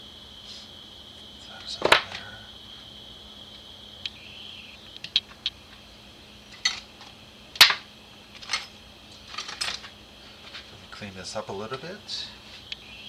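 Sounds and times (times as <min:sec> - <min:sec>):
metal parts clicking on workbench: 0:06.5 - 0:07.8, 0:08.4 - 0:10.7.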